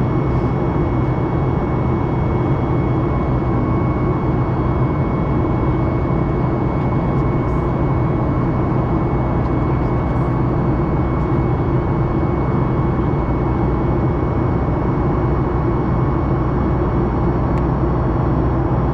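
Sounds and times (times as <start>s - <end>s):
aircraft cabin engine noise: 0.0s - 18.9s.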